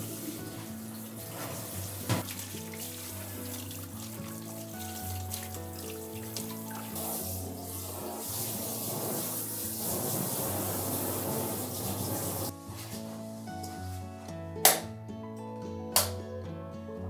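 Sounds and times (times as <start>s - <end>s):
tap water running into sink: 0.0s - 12.5s
background music: 0.0s - 17.0s.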